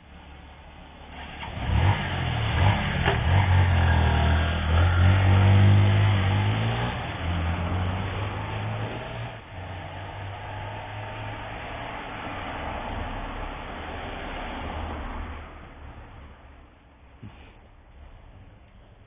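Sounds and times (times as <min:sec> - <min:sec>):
vehicle engine accelerating: 0:00.7 - 0:16.7.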